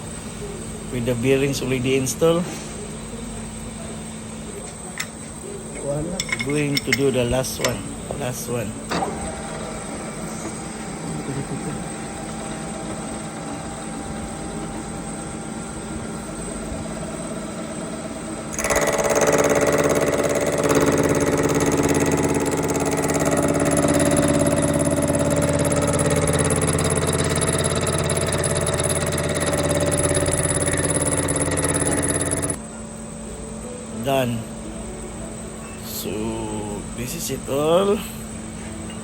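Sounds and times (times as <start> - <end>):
whining machining noise: 0.0 - 33.0
machine tool humming: 5.0 - 32.6.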